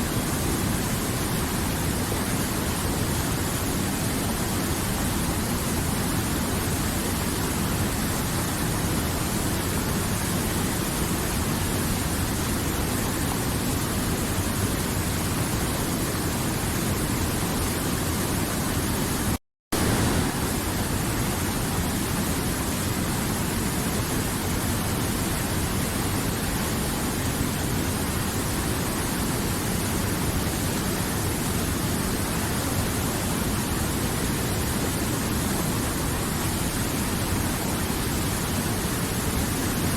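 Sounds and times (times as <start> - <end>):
river water rushing: 19.8 - 39.9.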